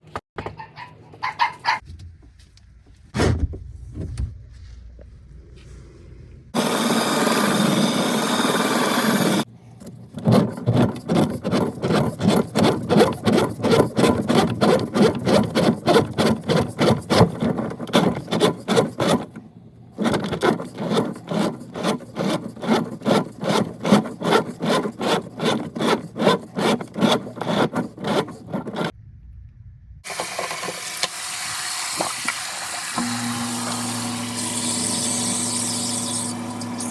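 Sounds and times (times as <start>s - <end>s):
hand saw cutting: 10.2s - 19.4s, 20.0s - 28.9s, 30.9s - 36.9s.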